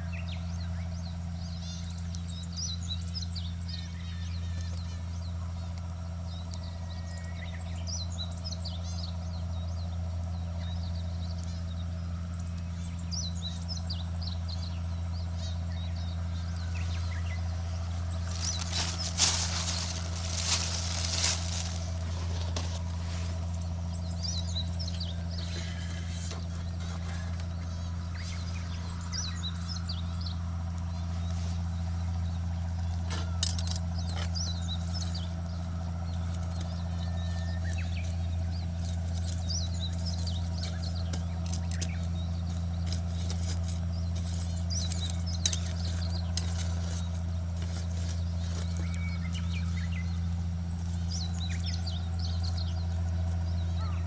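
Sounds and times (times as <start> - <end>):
small birds chirping: 0.0 - 54.0
steady low hum: 0.0 - 54.0
sharp crackling and clattering: 18.1 - 24.0, 32.9 - 36.8, 37.7 - 49.5.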